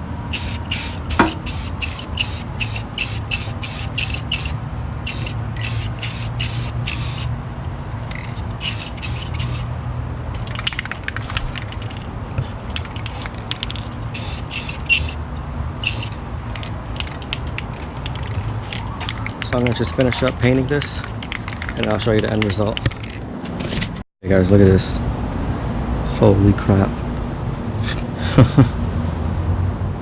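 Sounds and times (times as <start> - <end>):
steady low hum: 0.0 - 19.8
spray paint can hissing bursts: 0.3 - 7.3, 8.6 - 9.7, 14.1 - 15.2, 15.8 - 16.2.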